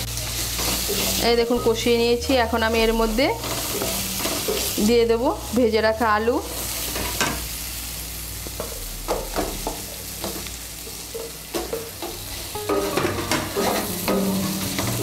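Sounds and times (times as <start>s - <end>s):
food sizzling in hot oil: 0.0s - 15.0s
wooden spatula scraping pan: 12.8s - 15.0s.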